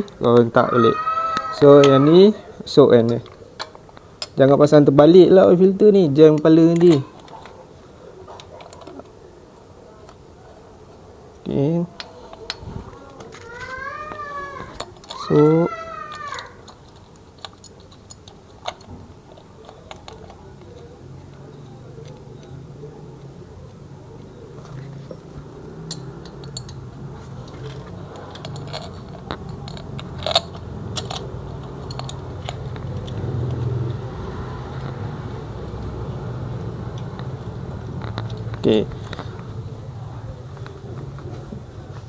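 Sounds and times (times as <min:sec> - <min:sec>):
metal parts clicking and knocking: 0:06.2 - 0:07.6, 0:08.3 - 0:09.1, 0:12.0 - 0:22.6, 0:24.6 - 0:34.0.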